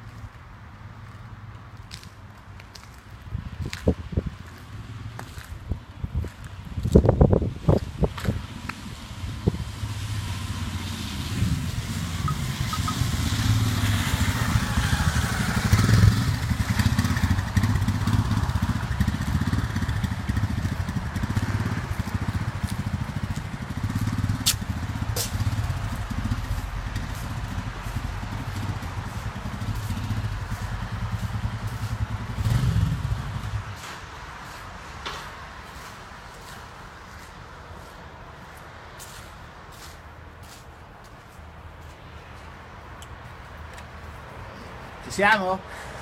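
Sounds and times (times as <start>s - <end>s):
engine running with low rumble: 0.0s - 44.9s.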